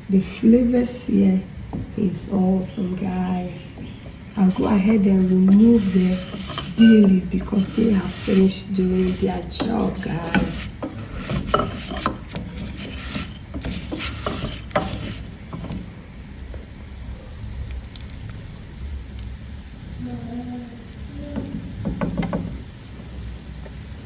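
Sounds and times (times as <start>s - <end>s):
quiet stirring: 0.1s - 16.3s
spoon scraping a pot: 3.6s - 15.9s.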